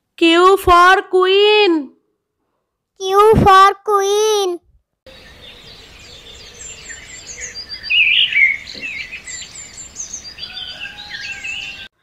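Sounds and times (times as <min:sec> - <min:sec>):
birds chirping: 0:05.1 - 0:11.9.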